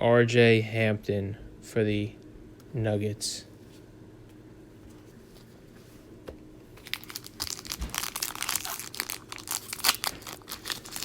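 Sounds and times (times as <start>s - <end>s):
plastic packaging crinkling: 6.8s - 11.0s.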